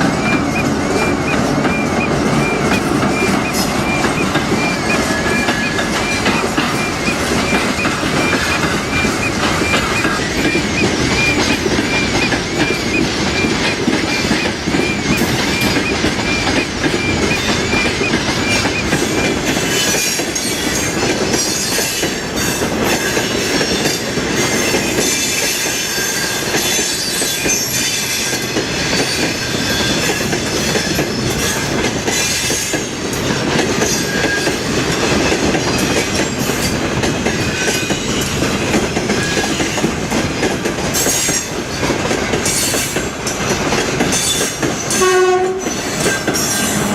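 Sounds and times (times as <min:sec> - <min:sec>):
train wheels clacking on rails: 0:00.0 - 0:46.9
high wheel squeal: 0:44.1 - 0:46.9.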